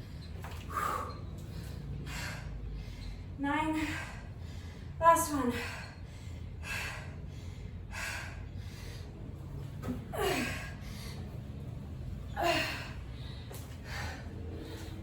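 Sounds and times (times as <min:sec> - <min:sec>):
woman breathing hard: 0:00.0 - 0:15.0.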